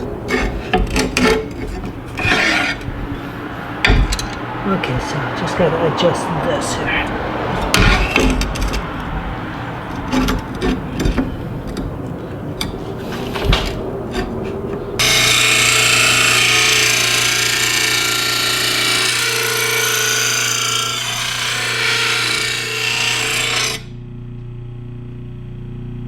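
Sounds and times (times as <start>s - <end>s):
grinding wheel on steel blade: 0.0s - 2.9s, 3.8s - 11.9s, 15.0s - 23.9s
metal knocks and clatter: 0.0s - 3.2s, 3.8s - 4.6s, 7.5s - 15.1s.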